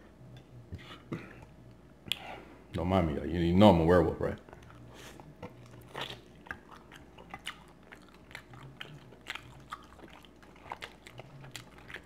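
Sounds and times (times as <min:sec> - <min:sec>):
person chewing food: 0:04.4 - 0:12.0.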